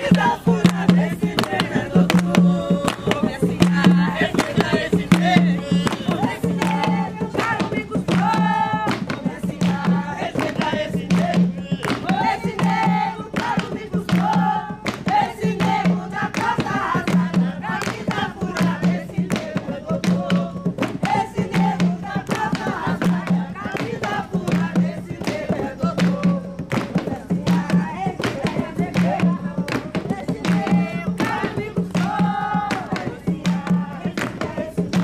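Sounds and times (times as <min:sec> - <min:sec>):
group singing: 0:00.0 - 0:35.0
hand drums beating: 0:00.0 - 0:35.0.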